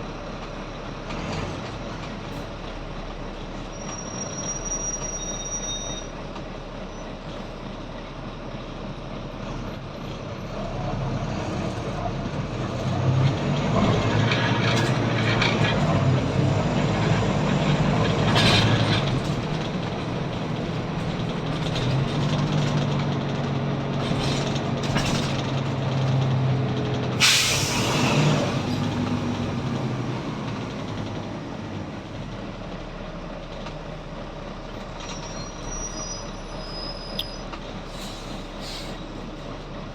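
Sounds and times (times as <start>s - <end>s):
bus diesel engine under load: 0.0s - 39.9s
air brake hisses: 27.2s - 28.9s, 35.6s - 39.3s.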